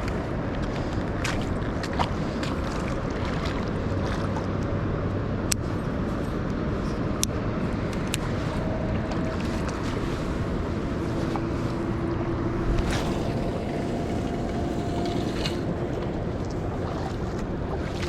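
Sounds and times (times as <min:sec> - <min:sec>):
river flowing: 0:00.0 - 0:18.0.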